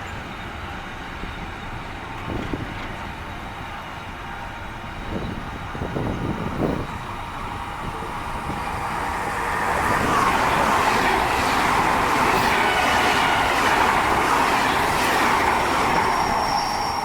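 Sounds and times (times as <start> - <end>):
train wheels rushing on rails: 0.0 - 17.0
high wheel squeal: 7.8 - 17.0.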